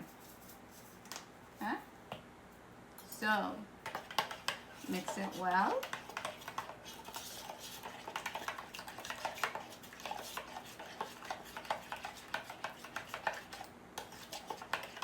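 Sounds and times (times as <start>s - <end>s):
utensil scraping against dish: 3.8s - 15.0s.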